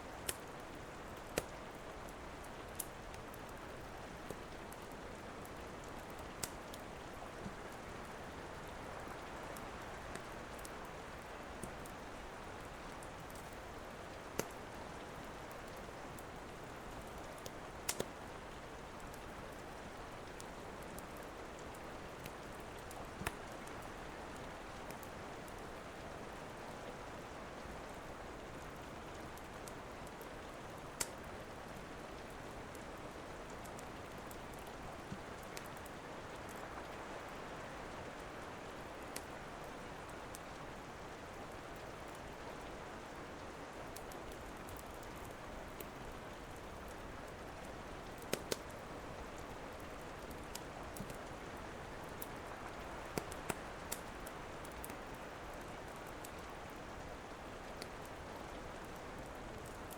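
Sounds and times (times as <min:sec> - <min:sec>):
steady rain: 0:00.0 - 0:59.9
wood fire popping: 0:14.3 - 0:14.6, 0:17.4 - 0:18.2, 0:21.5 - 0:23.8, 0:48.0 - 0:49.6, 0:50.2 - 0:51.2, 0:52.9 - 0:56.4.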